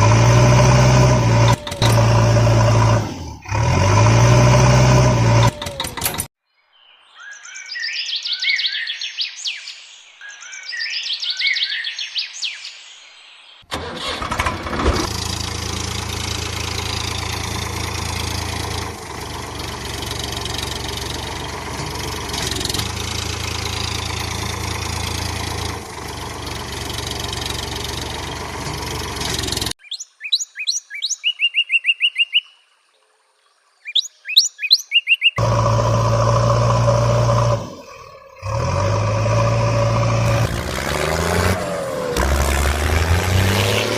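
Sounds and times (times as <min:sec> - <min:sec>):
vehicle engine running: 0:00.0 - 0:06.3, 0:13.7 - 0:29.8, 0:35.4 - 0:43.9
birds chirping: 0:05.5 - 0:13.7, 0:16.1 - 0:42.6.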